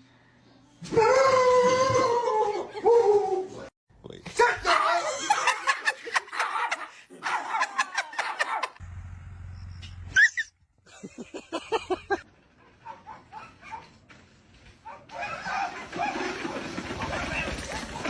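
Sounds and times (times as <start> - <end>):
dog barking and yipping: 6.3 - 8.8, 12.6 - 14.0, 14.8 - 18.0.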